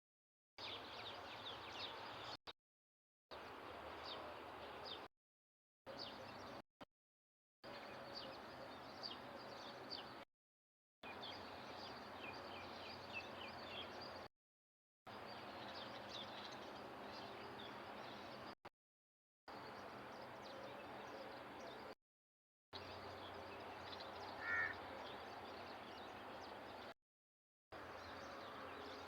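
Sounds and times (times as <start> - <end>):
small birds chirping: 0.6 - 2.4, 11.0 - 14.3, 15.1 - 18.6, 22.8 - 27.0.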